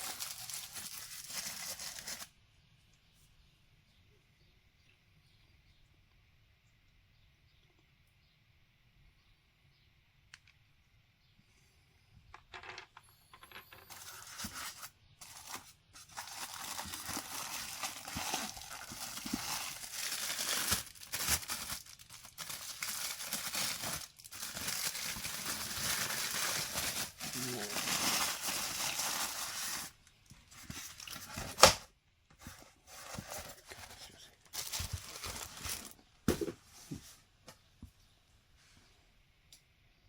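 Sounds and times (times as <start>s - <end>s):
packaging crinkling and rustling: 0.0s - 2.4s, 13.9s - 36.1s.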